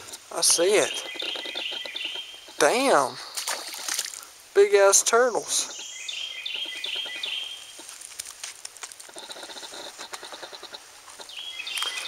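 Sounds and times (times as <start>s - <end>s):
ticking bird chips: 5.7s - 12.0s.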